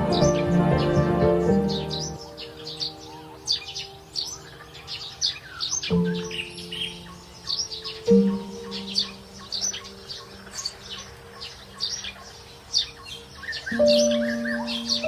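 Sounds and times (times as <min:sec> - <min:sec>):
forest birds chirping: 0:00.0 - 0:15.0
soft background music chords: 0:00.0 - 0:15.0.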